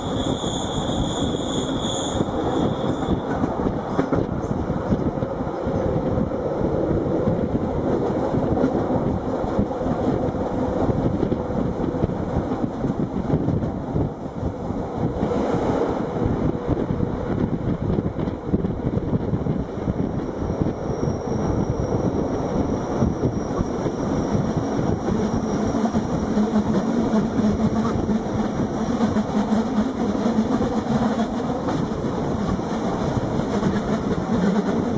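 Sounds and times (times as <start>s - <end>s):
train rumbling: 0.0s - 34.9s.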